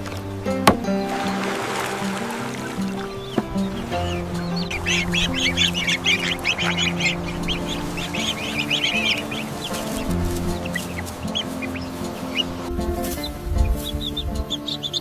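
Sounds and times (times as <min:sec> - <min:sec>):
background music with held notes: 0:00.0 - 0:15.0
poultry chirping and clucking: 0:02.6 - 0:15.0.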